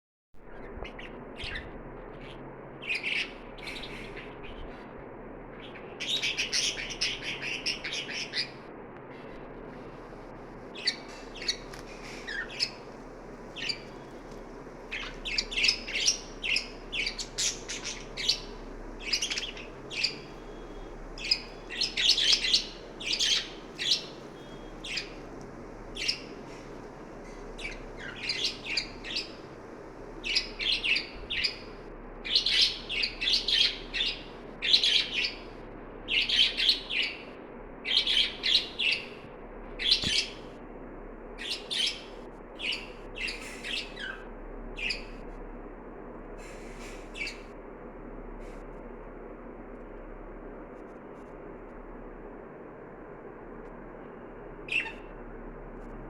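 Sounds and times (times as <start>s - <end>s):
steady background hiss: 0.5s - 56.0s
budgerigars chirping: 0.6s - 4.8s, 5.6s - 8.6s, 10.8s - 12.9s, 13.5s - 14.2s, 14.9s - 25.2s, 26.0s - 29.4s, 30.2s - 35.5s, 36.1s - 37.2s, 37.9s - 39.2s, 39.8s - 40.4s, 41.4s - 45.2s, 46.8s - 47.5s, 54.7s - 55.1s.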